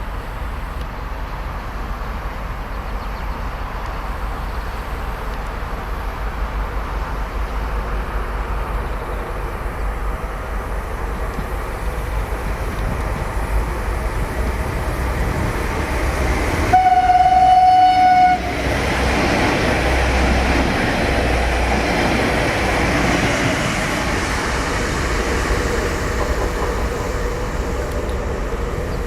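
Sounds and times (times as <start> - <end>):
train running: 0.0 - 29.0
train horn: 16.7 - 18.7.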